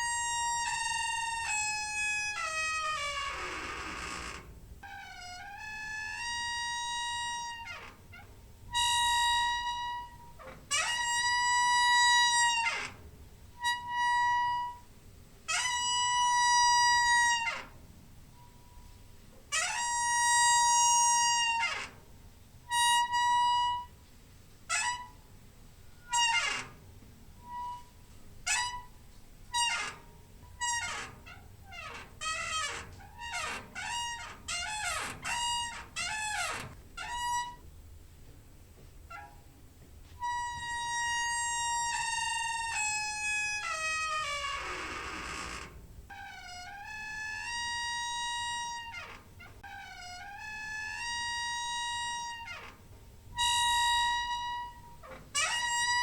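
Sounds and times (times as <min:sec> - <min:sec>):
squeaky door hinge creaking: 0:00.0 - 0:37.7, 0:39.1 - 0:39.6, 0:40.2 - 0:56.0.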